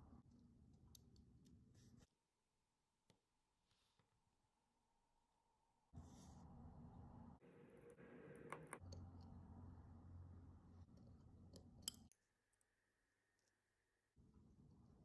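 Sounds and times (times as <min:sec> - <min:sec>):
small metal parts clicking: 0:11.6 - 0:12.1.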